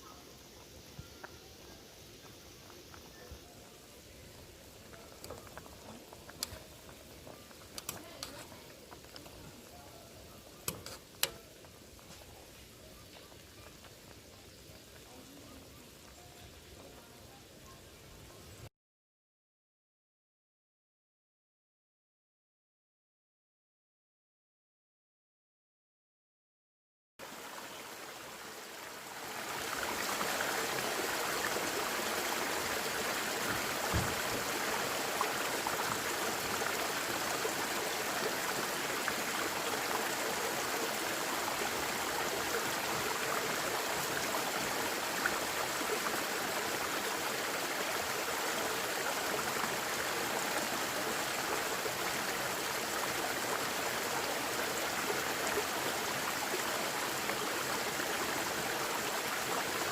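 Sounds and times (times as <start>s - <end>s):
stream water rushing: 27.2s - 59.9s.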